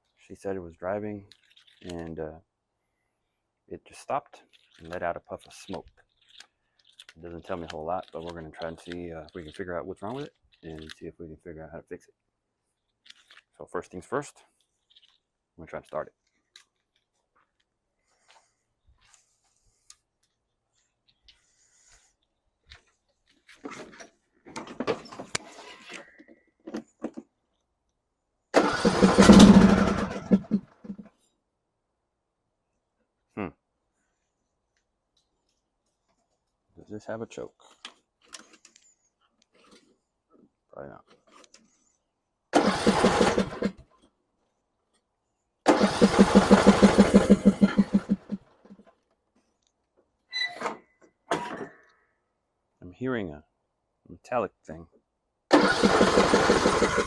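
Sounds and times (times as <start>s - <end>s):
clicks and rustles: 1.2s - 2.2s, 4.3s - 11.1s, 12.7s - 28.0s, 37.5s - 42.0s
mower starter cranking engine: 28.6s - 31.1s, 42.6s - 43.8s, 45.7s - 48.4s, 55.5s - 57.0s.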